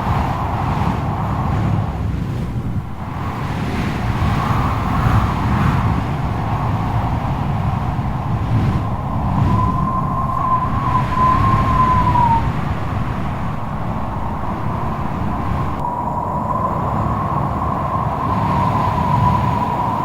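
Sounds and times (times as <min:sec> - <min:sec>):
strong wind howling: 0:00.0 - 0:20.0
deep rumble: 0:06.1 - 0:17.8
thin wavering whistle: 0:08.8 - 0:12.5.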